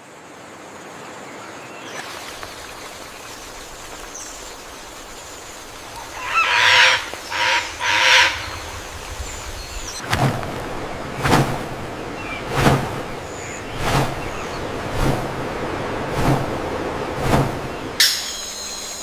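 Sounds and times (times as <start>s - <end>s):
large bird harsh calls: 5.8s - 11.3s.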